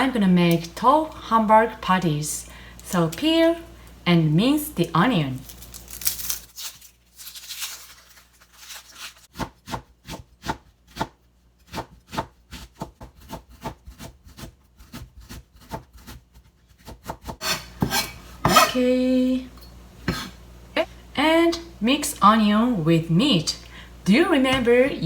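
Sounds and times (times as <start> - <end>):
knife chopping on cutting board: 9.3 - 18.8.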